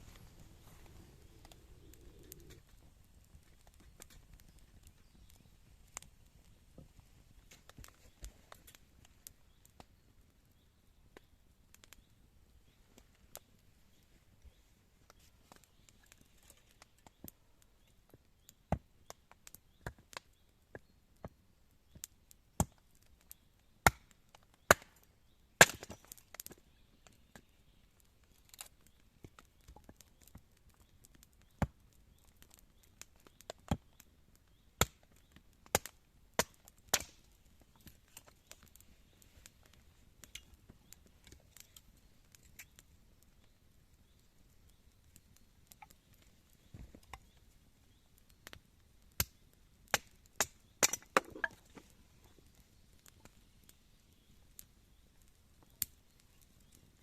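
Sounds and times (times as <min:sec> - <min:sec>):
wood being chopped: 0:25.6 - 0:26.1, 0:49.9 - 0:51.6.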